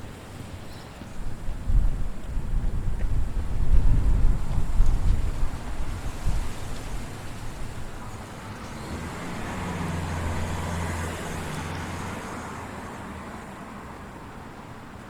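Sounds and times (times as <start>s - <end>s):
vehicle passing by: 5.9s - 14.2s.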